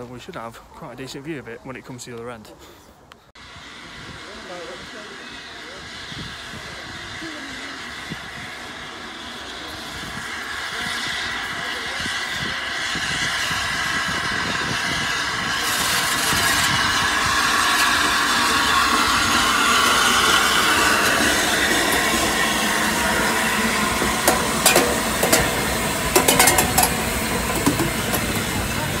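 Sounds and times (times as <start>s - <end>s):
steam locomotive hiss and rumble: 0.0s - 29.0s
sharp metallic clanks: 24.0s - 28.5s.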